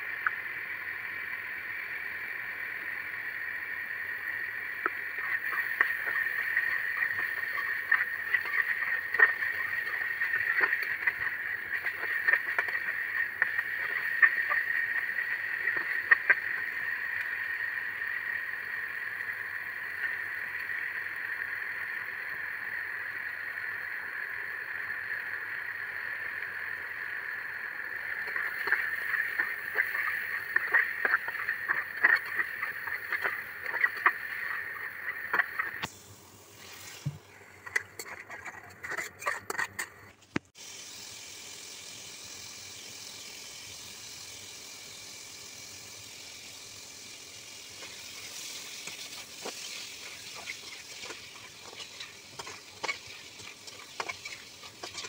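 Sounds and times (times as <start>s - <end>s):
pan steaming hiss: 0.0s - 39.9s, 40.5s - 55.0s
food sizzling in oil: 1.6s - 39.7s, 40.6s - 55.0s
metal spatula scraping pan: 50.4s - 55.0s.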